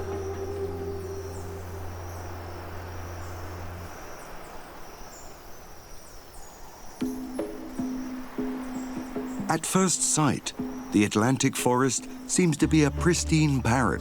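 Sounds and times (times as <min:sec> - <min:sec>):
soft ambient music: 0:00.0 - 0:04.7, 0:07.0 - 0:14.0
insects chirping: 0:00.0 - 0:14.0.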